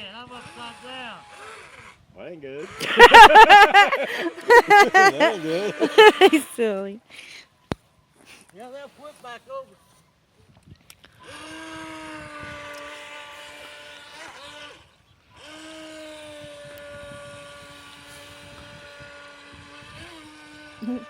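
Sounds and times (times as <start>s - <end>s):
toy boat motor whining: 0.0s - 6.6s, 11.1s - 21.0s.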